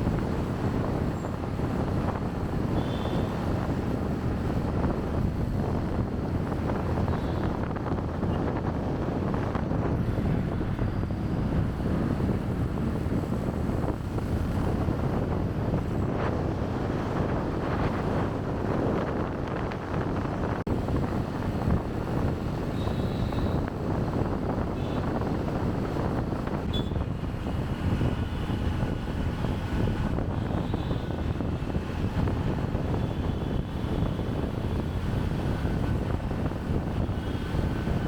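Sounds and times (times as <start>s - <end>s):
road noise: 0.0s - 38.0s
wind buffeting microphone: 0.0s - 38.0s.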